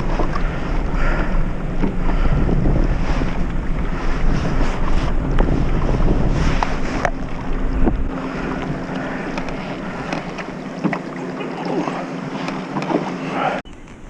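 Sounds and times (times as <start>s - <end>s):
water lapping against kayak: 0.0s - 14.0s
wind buffeting microphone: 0.0s - 14.0s
faint steady hum: 5.2s - 14.0s.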